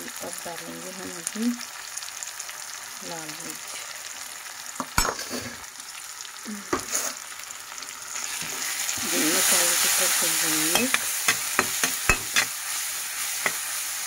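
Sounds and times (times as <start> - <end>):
spices sizzling in hot oil: 0.0 - 14.0
spatula scraping a pan: 5.0 - 5.6, 10.7 - 13.9.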